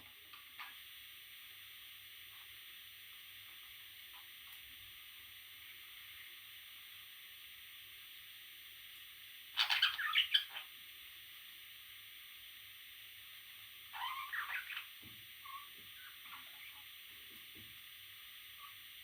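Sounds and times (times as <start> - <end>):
steady hiss: 0.0 - 19.0
parrot chicks calling: 9.6 - 10.7, 13.9 - 16.9.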